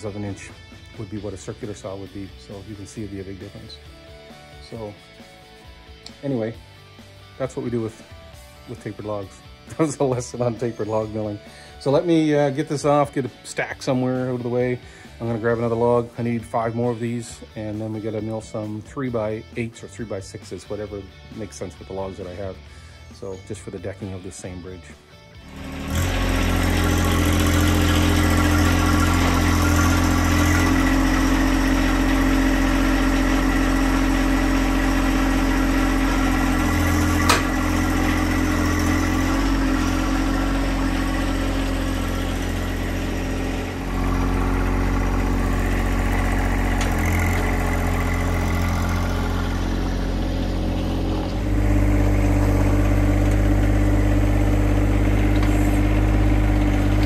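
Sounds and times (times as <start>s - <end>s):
tractor diesel engine running: 25.4s - 57.0s.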